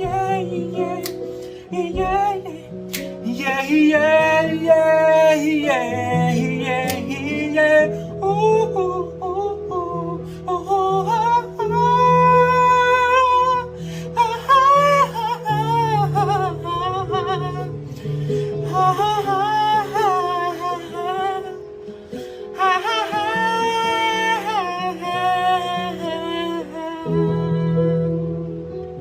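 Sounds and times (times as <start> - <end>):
person singing wordless vocal exercise: 0.0 - 28.2
instrumental backing chords: 0.0 - 29.0.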